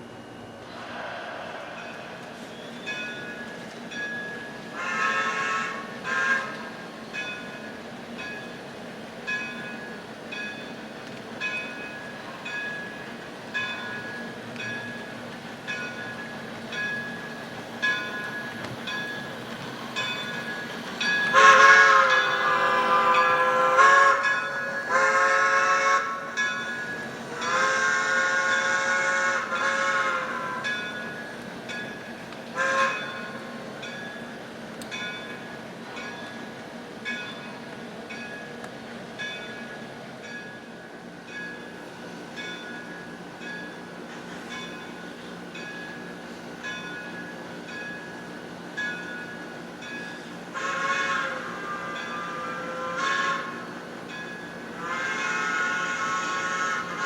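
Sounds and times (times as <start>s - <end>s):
model train bell ringing: 2.8s - 38.6s, 39.2s - 57.0s
steam locomotive whistle: 4.7s - 6.8s, 21.2s - 31.3s, 32.5s - 33.6s, 50.5s - 53.9s, 54.6s - 57.0s.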